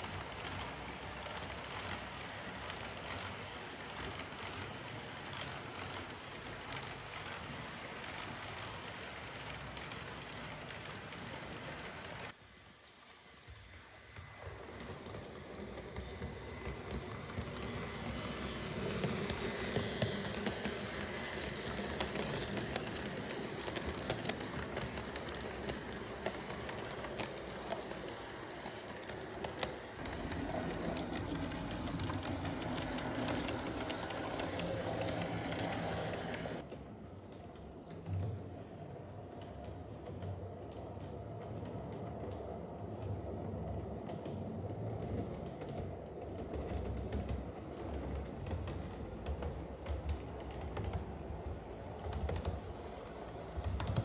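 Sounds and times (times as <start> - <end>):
model train wheels rattling: 13.0 - 36.7, 44.1 - 54.0
small motors running: 30.0 - 36.6.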